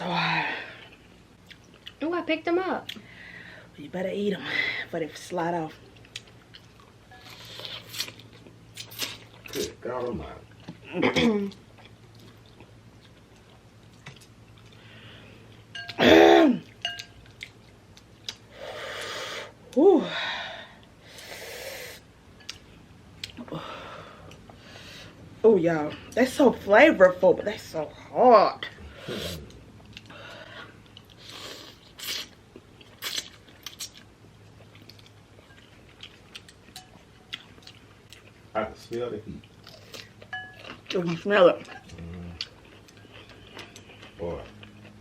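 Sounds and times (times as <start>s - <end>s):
chewing and mouth clicks: 1.4s - 2.0s, 11.5s - 14.8s, 32.0s - 45.0s
person crying out: 19.8s - 20.1s.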